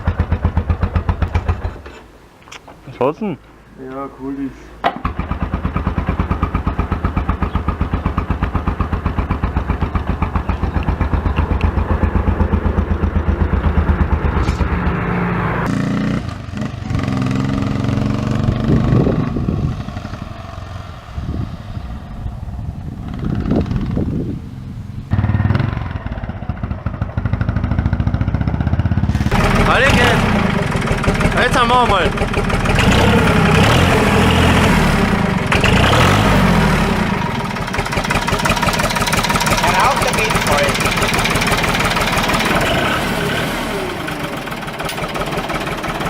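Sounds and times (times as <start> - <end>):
engine running: 0.0 - 2.1, 4.9 - 46.0
engine revving: 5.0 - 46.0.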